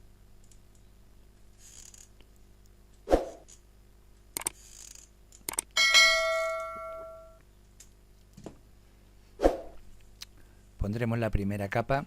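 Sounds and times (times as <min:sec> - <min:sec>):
metal object ringing when struck: 0:05.8 - 0:07.4.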